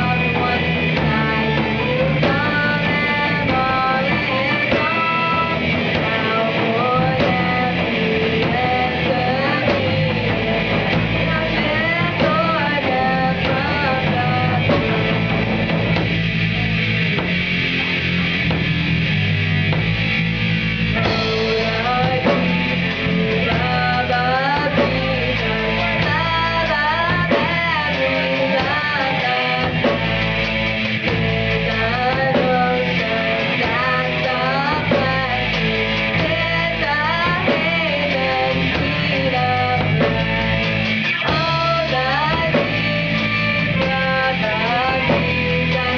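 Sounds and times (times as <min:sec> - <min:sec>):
electric guitar: 0:00.0 - 0:45.9
rock band playing: 0:00.0 - 0:45.9.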